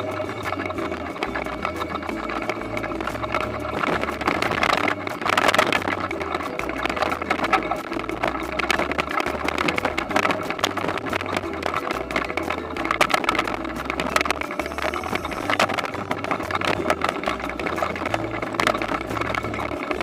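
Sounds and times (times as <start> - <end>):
machine parts rattling and clattering: 0.0 - 20.0.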